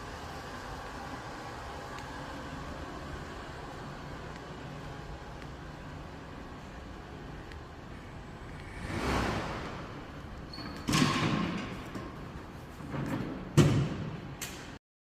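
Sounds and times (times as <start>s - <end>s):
steady low hum: 0.0s - 10.5s
whoosh: 8.4s - 10.2s
door sliding: 8.6s - 13.6s.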